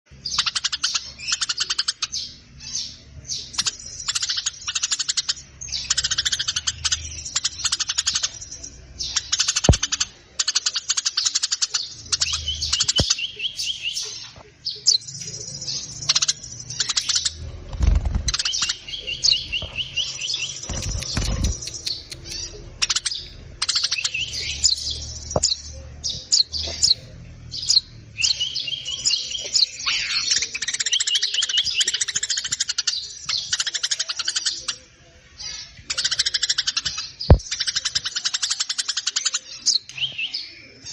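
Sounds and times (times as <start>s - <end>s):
songbird singing: 0.1s - 40.9s.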